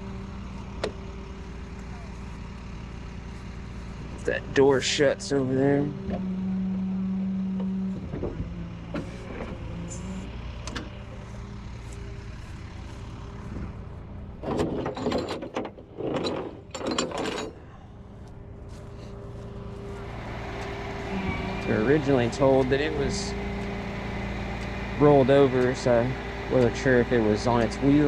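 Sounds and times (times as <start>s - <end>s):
engine idling: 0.0s - 28.0s
loud steady tone: 19.8s - 27.5s.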